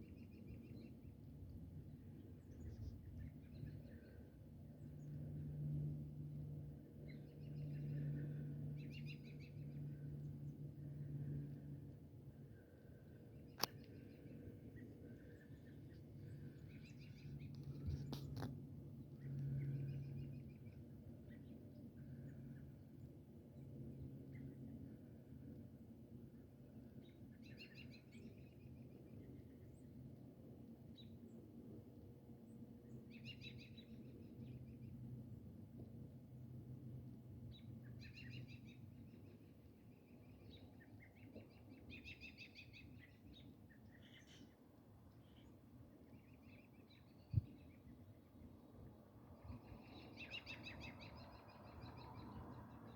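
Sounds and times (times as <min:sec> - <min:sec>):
faint songbird chirping: 0:00.0 - 0:25.3, 0:26.3 - 0:30.2, 0:30.8 - 0:31.7, 0:32.4 - 0:35.5, 0:37.3 - 0:52.9
low steady hum: 0:00.0 - 0:52.9
low background rumble: 0:00.2 - 0:52.9
small birds chirping: 0:49.4 - 0:52.9.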